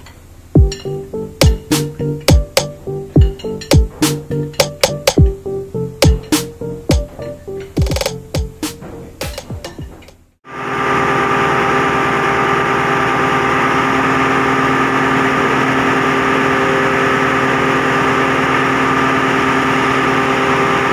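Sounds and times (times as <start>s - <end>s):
diesel engine droning: 10.5s - 20.9s.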